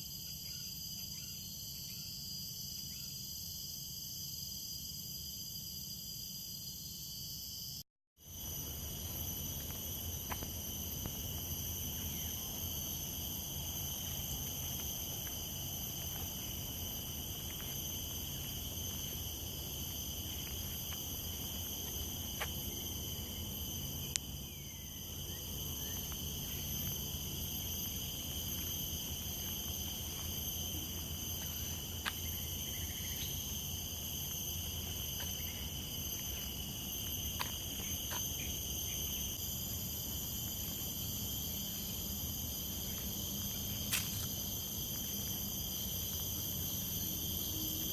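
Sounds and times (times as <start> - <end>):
insects chorus: 0.0 - 47.9.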